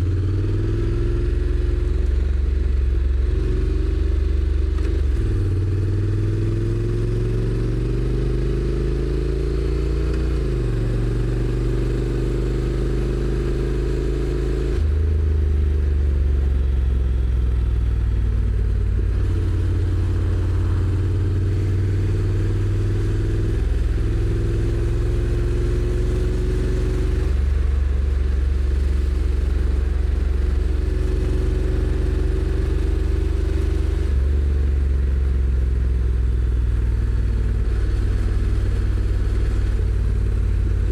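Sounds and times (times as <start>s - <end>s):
motorcycle engine shifting gears: 4.6s - 40.9s.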